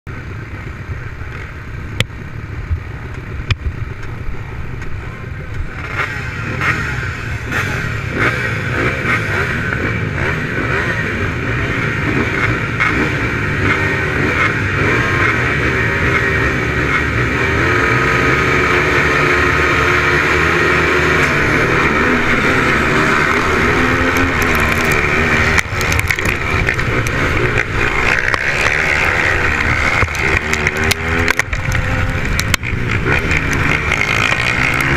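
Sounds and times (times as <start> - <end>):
racing motorcycle engines revving: 0.1 - 34.9.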